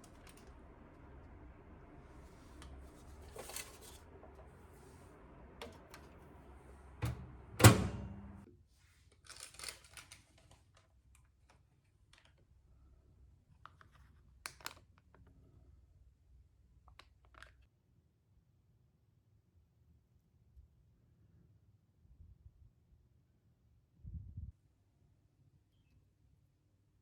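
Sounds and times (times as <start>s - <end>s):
light scrapes and clicks of handling: 2.4s - 5.0s.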